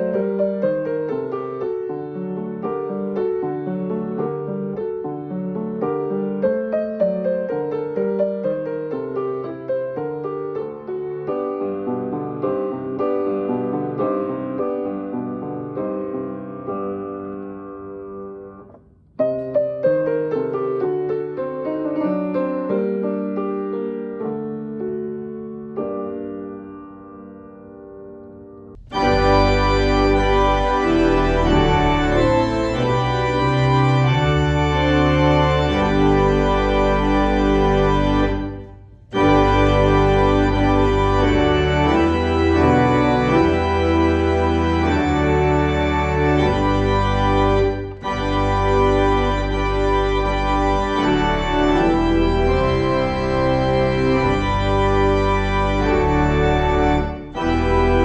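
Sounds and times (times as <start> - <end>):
organ playing sustained chords: 28.8 - 58.0.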